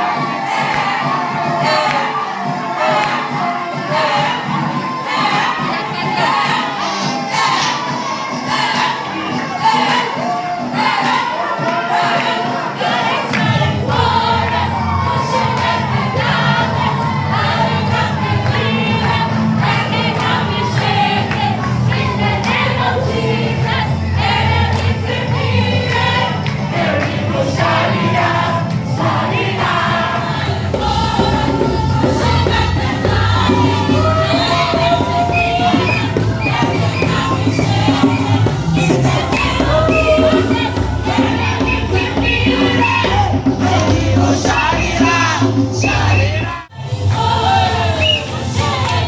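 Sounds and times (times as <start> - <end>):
many voices singing worship music: 0.0 - 49.0
bass line: 13.5 - 46.6.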